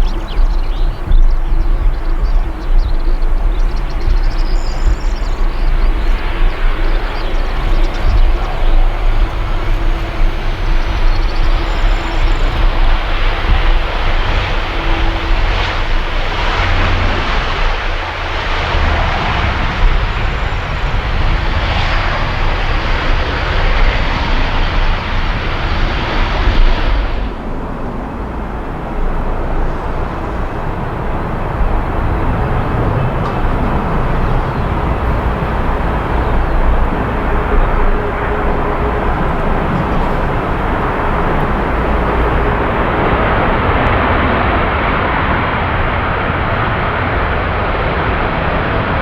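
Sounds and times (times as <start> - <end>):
jet engines roaring: 0.0 - 49.0.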